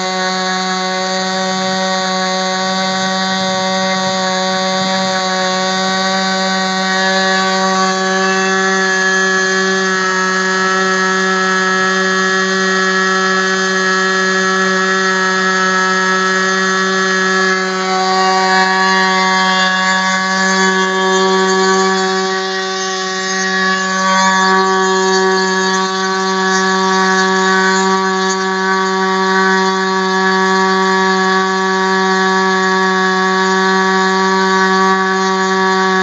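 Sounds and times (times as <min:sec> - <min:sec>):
model engine high-pitched buzz: 0:00.0 - 0:36.0.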